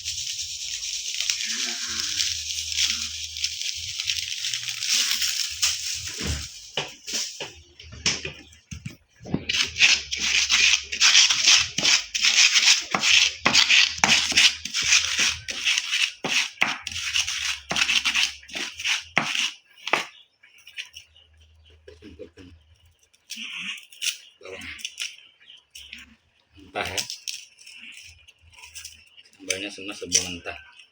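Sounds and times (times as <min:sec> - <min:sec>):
grinding and crushing by hand: 0:00.0 - 0:07.4, 0:09.3 - 0:21.1, 0:26.8 - 0:30.9.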